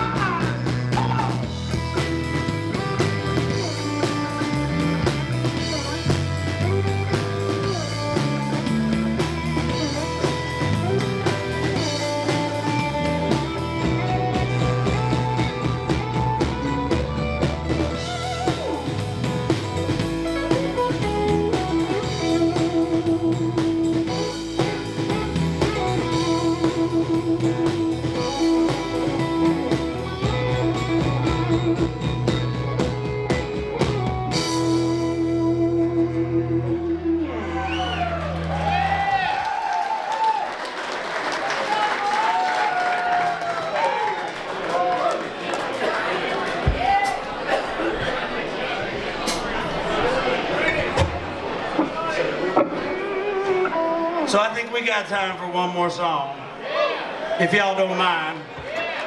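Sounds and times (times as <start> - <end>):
drum kit: 0.0 - 36.2
lead guitar: 0.0 - 39.2, 52.4 - 54.7
bass guitar: 0.0 - 39.7, 49.1 - 54.8.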